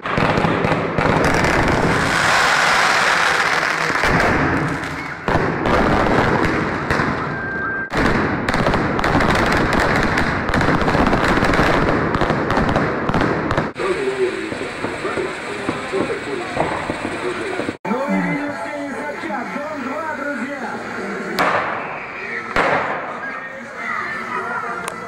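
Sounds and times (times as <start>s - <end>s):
fireworks bangs and crackles: 0.0s - 19.8s, 20.4s - 25.0s
firework whistle: 6.9s - 7.9s, 21.4s - 23.4s.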